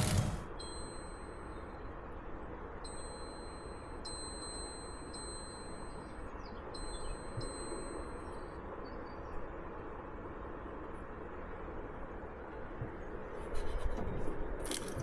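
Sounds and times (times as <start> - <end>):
high chime-like tone: 2.9 - 6.2.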